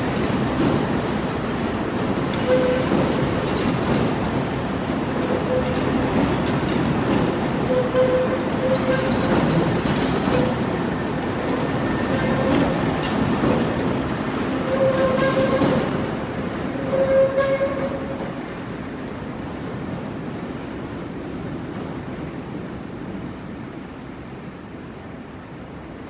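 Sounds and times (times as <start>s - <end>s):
train wheel squeal: 0.0s - 18.5s
wheels clacking over rail joints: 0.0s - 18.6s
train rumbling: 0.0s - 26.0s.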